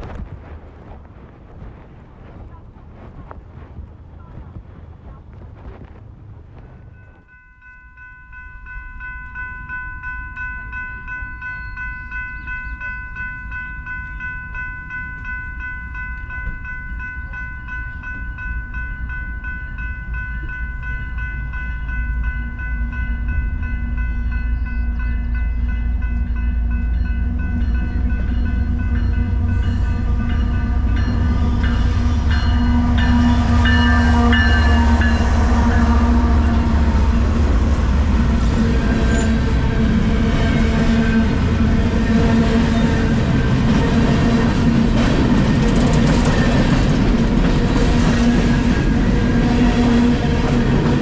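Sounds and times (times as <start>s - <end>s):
train rumble: 0.0s - 51.0s.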